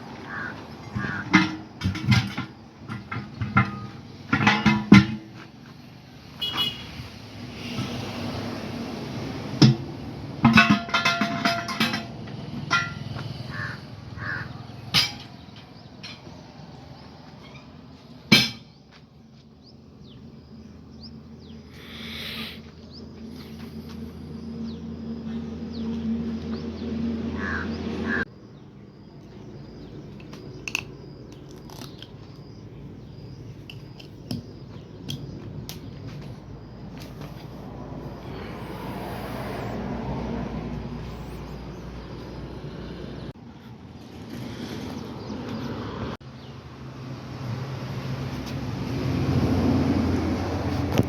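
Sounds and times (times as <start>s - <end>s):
birds chirping: 0.0s - 4.5s, 13.2s - 46.6s
vehicle engine humming: 0.0s - 51.0s.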